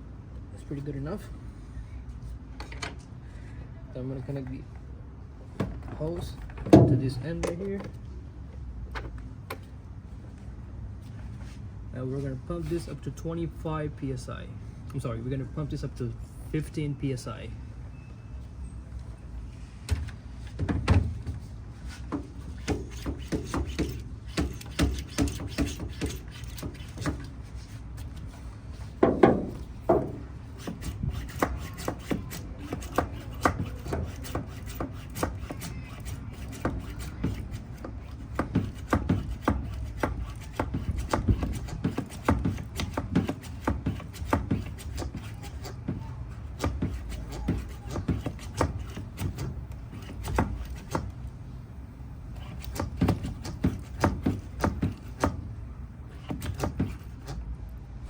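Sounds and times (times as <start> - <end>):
hand pump clicking and rubbing: 21.9 - 28.4, 29.3 - 51.4, 52.3 - 57.6.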